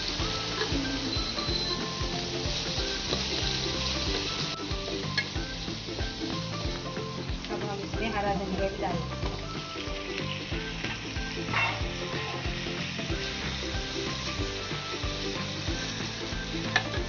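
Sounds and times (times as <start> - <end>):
vegetables sizzling in hot oil: 0.0 - 17.0
wooden spatula scraping a pan: 10.9 - 12.6.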